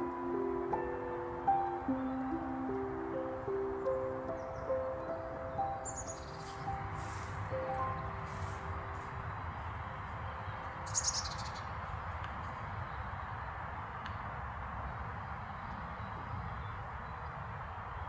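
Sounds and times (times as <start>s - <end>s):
bird chirping: 0.0s - 12.0s
outdoor hiss: 5.5s - 9.6s.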